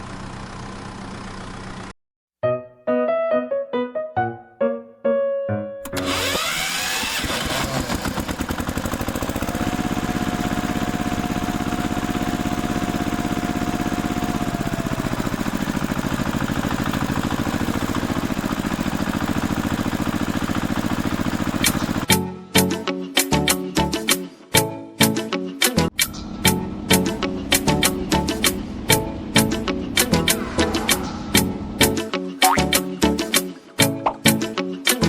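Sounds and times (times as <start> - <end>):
engine chugging: 0.0 - 1.9, 5.9 - 22.1, 26.0 - 32.1
steady high whine: 26.2 - 32.1.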